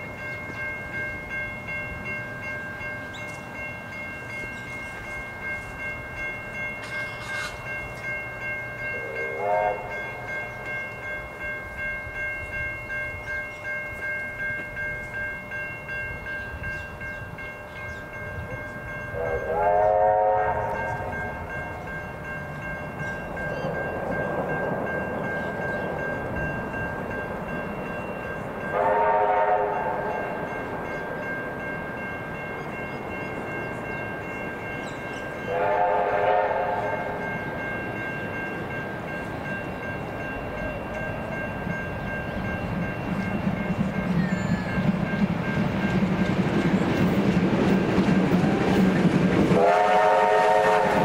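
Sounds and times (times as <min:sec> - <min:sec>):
train rumble: 0:00.0 - 0:51.0
steam locomotive whistle blasts: 0:08.9 - 0:10.3, 0:19.2 - 0:21.4, 0:28.7 - 0:30.2, 0:35.5 - 0:37.2, 0:49.5 - 0:51.0.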